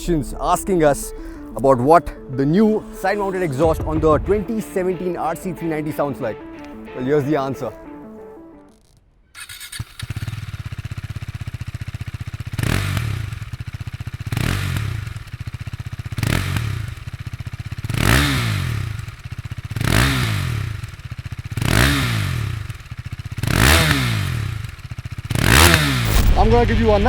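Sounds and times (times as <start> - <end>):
motorcycle engine idling and revving: 9.4 - 27.0.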